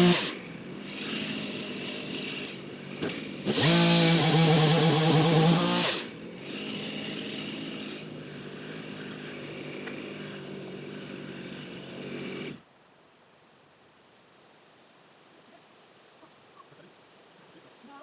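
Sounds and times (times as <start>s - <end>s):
chainsaw idling: 0.0s - 12.6s.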